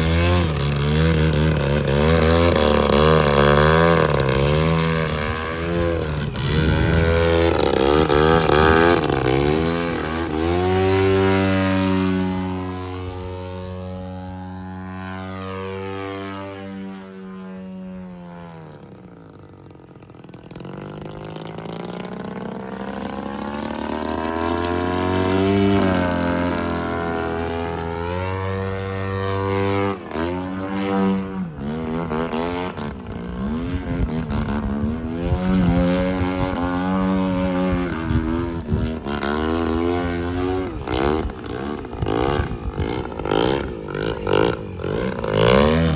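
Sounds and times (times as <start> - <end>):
model airplane motor in flight: 0.0 - 45.9.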